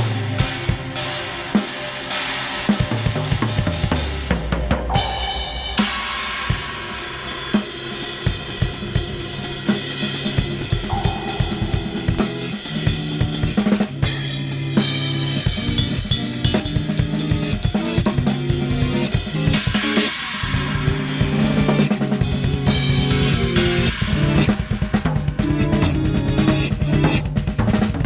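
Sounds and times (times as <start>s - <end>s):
acoustic drum kit playing: 3.0s - 28.0s
sustained low tones: 10.4s - 14.3s.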